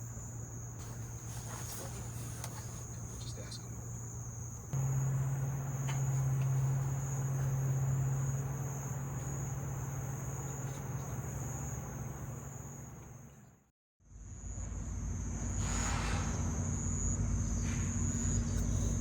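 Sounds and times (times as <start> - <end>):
insects chirring: 0.0 - 13.6, 14.2 - 19.0
steady low hum: 0.0 - 19.0.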